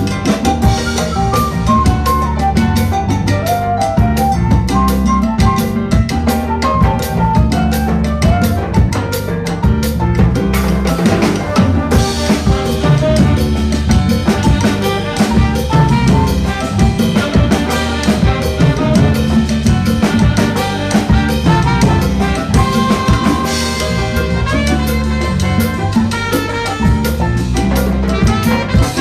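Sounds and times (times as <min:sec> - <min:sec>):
latin big band playing salsa: 0:00.0 - 0:29.0
held horn note: 0:14.3 - 0:27.4.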